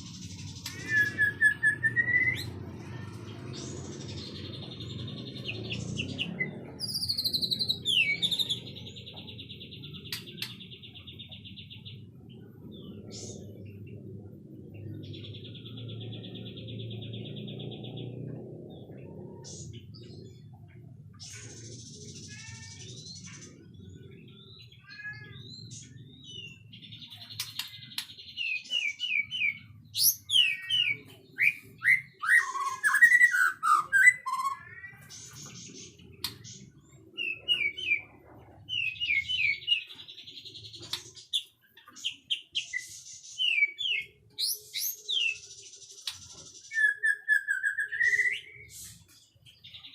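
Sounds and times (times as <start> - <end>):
bird singing trills and whistles: 0.0 - 14.0, 14.8 - 49.9.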